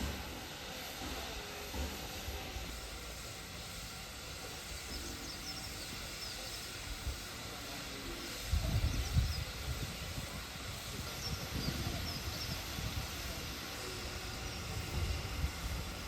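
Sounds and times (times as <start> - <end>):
steady outdoor hiss: 0.0 - 16.0
wind buffeting microphone: 8.5 - 13.6.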